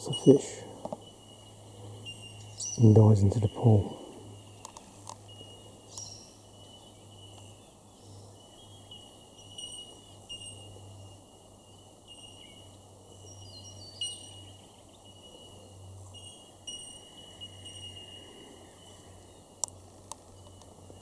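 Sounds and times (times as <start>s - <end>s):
high ringing tones: 0.0s - 4.6s, 5.2s - 19.4s
sharp clicks: 4.6s - 5.2s.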